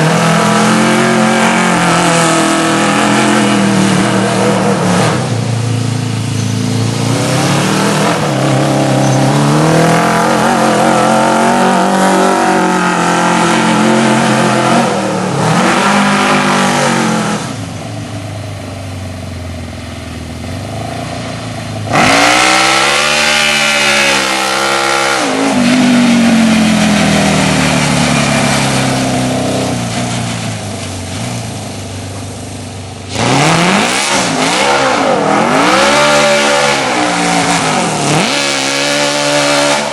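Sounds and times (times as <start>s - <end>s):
go-kart engine revving: 0.0s - 19.7s, 20.3s - 39.9s.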